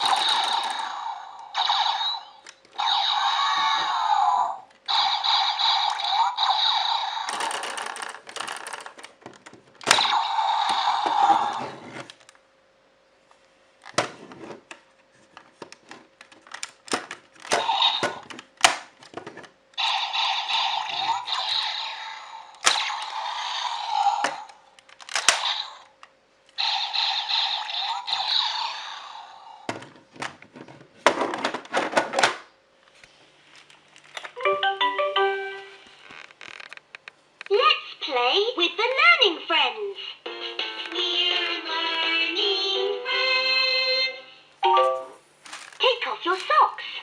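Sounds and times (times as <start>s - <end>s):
plastic toys clicking and knocking: 0.0s - 1.0s, 7.2s - 12.2s, 15.4s - 21.8s, 22.6s - 23.2s, 23.9s - 25.7s, 29.7s - 32.5s
electronic toy sounds: 0.0s - 8.9s, 19.8s - 25.8s, 26.6s - 29.6s.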